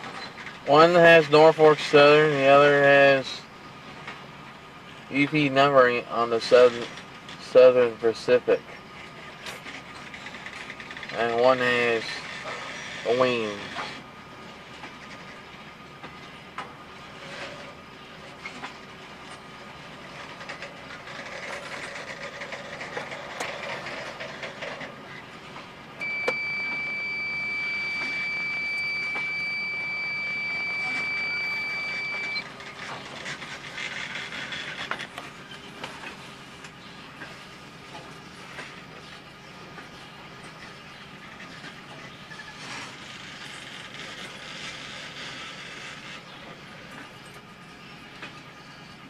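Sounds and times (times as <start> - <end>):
freight train cars rumbling: 0.0 - 49.0
wheel clicks over rail joints: 20.1 - 25.7
high-pitched squeal: 26.0 - 32.5.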